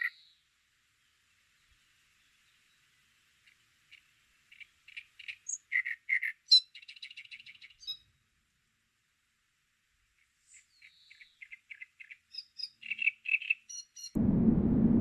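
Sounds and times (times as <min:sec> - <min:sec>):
bird singing: 0:00.0 - 0:00.4, 0:04.5 - 0:08.1, 0:10.5 - 0:14.2.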